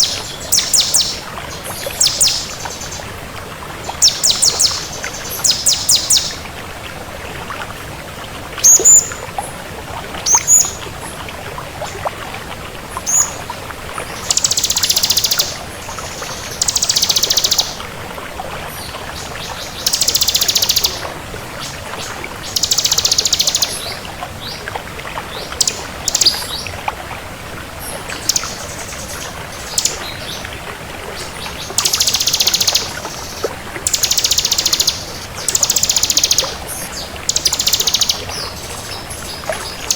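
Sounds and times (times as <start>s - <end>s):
bird chirping: 0.0s - 3.0s, 3.9s - 6.4s, 14.2s - 15.6s, 16.3s - 17.8s, 19.5s - 21.0s, 22.5s - 24.0s, 28.2s - 30.4s, 31.7s - 39.9s
bird singing buzzy high trills: 4.0s - 6.4s.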